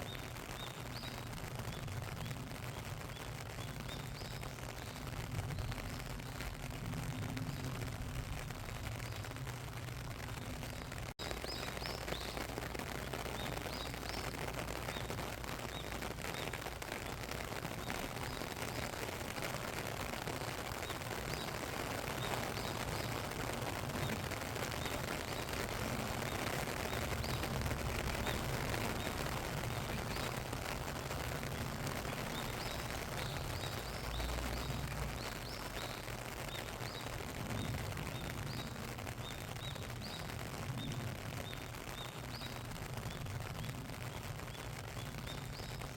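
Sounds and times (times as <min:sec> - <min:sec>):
steady rain falling: 0:00.0 - 0:45.9
bird chirps: 0:10.4 - 0:19.0, 0:20.8 - 0:30.8, 0:31.4 - 0:43.8.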